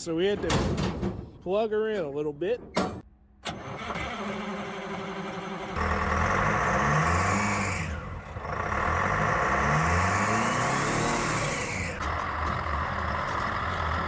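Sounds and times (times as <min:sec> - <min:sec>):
engine cranking: 0:03.4 - 0:07.0
diesel engine running loudly: 0:03.6 - 0:14.0.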